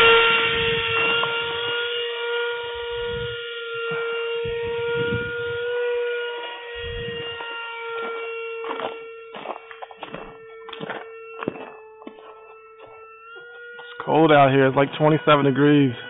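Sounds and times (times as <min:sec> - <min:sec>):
wind rumble on microphone: 0:00.0 - 0:01.8, 0:02.7 - 0:07.6
electric ducted fan whining: 0:00.0 - 0:16.0.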